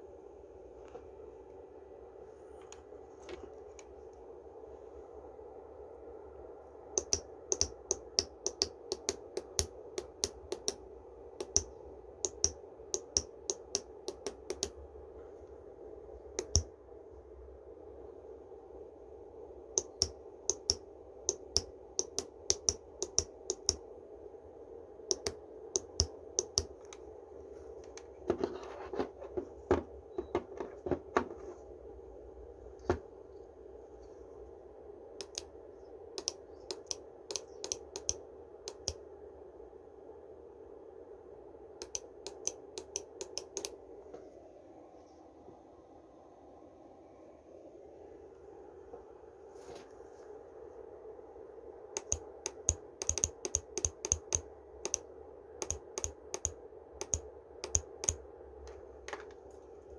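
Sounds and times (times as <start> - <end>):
steady low hum: 0.0 - 59.9
sharp clicks: 7.0 - 10.8, 11.4 - 14.8, 16.4 - 16.7, 19.8 - 23.8, 25.1 - 27.0, 35.2 - 35.5, 36.2 - 39.0, 41.8 - 43.8, 52.0 - 58.2.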